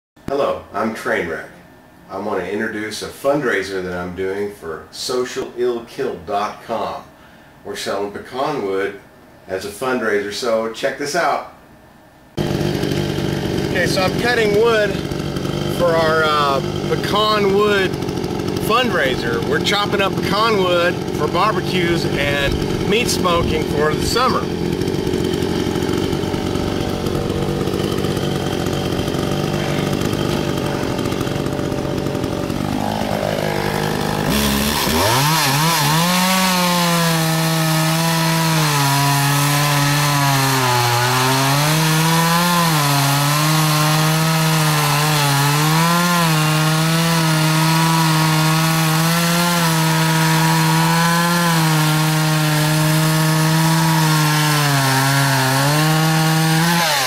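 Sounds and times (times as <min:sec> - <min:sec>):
chainsaw cutting logs: 0:12.4 - 0:57.0.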